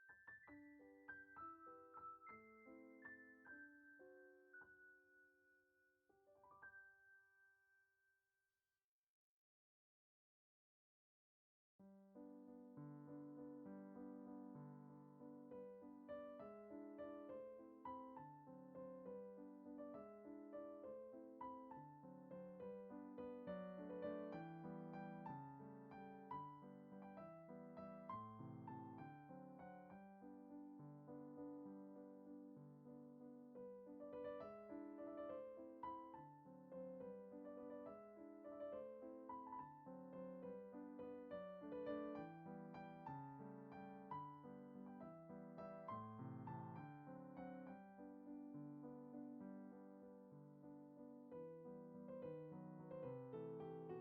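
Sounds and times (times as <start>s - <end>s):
soft piano music: 0.0s - 7.6s, 11.8s - 54.0s.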